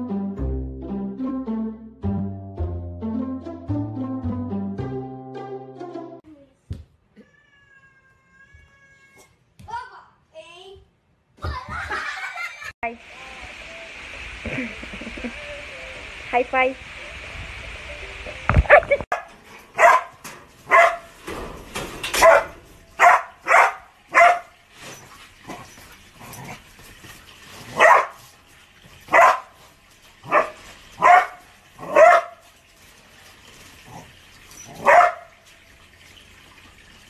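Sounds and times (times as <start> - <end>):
dog barking: 19.1 - 21.1, 22.2 - 24.5, 27.7 - 28.2, 29.1 - 29.6, 30.2 - 32.4, 34.8 - 35.4.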